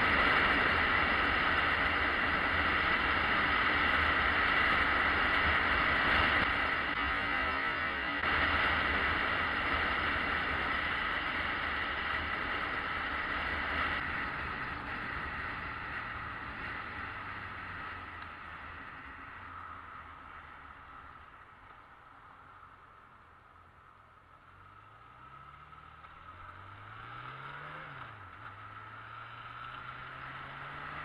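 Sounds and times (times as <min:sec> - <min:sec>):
motorcycle engine running: 0:00.0 - 0:21.2.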